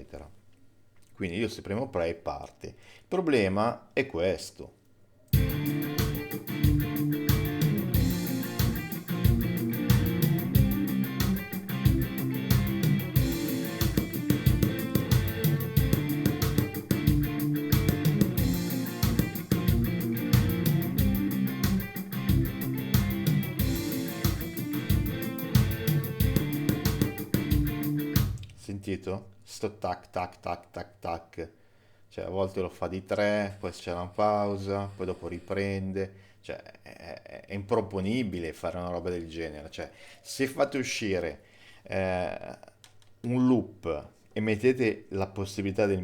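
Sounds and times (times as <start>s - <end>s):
guitar loop of chords and riff: 5.4s - 28.4s
drum machine beat: 5.4s - 28.5s.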